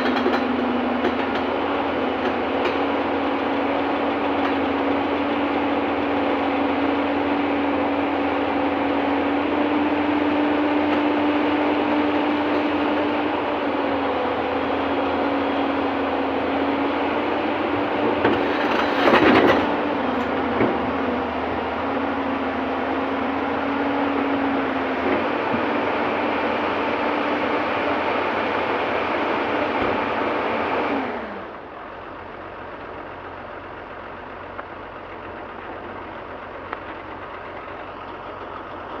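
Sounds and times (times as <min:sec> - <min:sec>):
rough clatter: 0:00.0 - 0:01.5, 0:18.2 - 0:20.8
excavator engine hum: 0:00.0 - 0:39.0.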